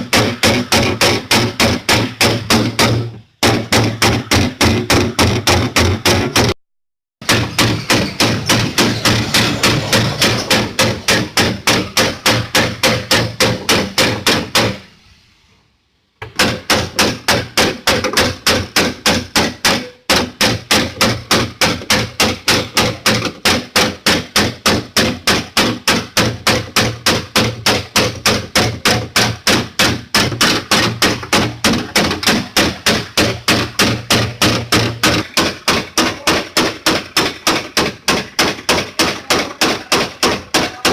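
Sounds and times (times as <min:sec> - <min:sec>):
hammer beating sheet metal: 0:00.0 - 0:06.6, 0:07.2 - 0:14.9, 0:16.2 - 0:40.9.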